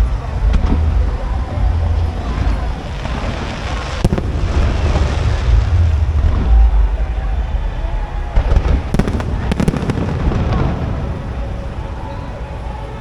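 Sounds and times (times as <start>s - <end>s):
fireworks shells booming: 0.0s - 11.8s
sharp firework crack: 2.2s - 11.5s.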